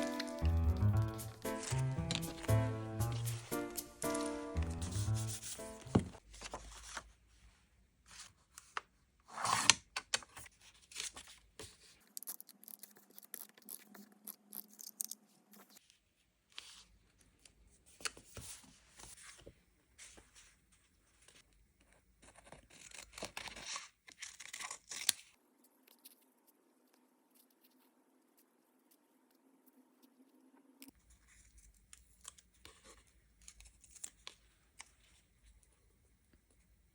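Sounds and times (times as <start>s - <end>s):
short music jingle: 0.0s - 6.2s
paper rustling and tearing: 0.0s - 7.2s.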